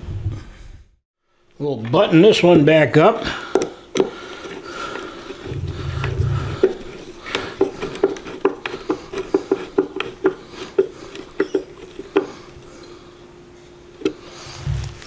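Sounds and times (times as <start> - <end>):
steady low hum: 3.4 - 15.0.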